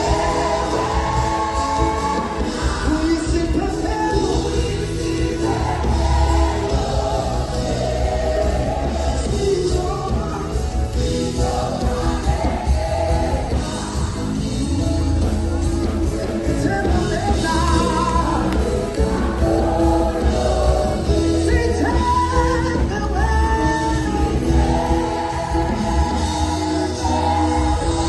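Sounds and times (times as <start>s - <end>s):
band music with singing: 0.0s - 28.0s.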